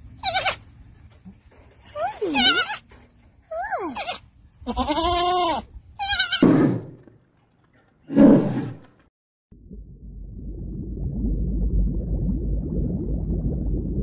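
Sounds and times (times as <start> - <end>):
young goat bleating: 0.2 - 0.6, 2.0 - 2.8, 3.6 - 6.4.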